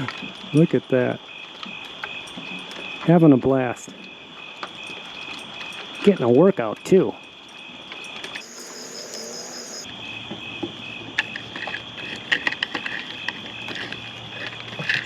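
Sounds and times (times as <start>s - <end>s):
high-pitched insect trill: 7.1s - 11.0s
insect chorus chirping: 7.1s - 12.0s.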